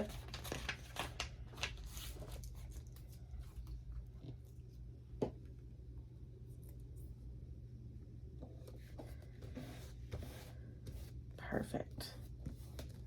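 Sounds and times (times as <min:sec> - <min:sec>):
paper rustling: 0:00.0 - 0:03.8.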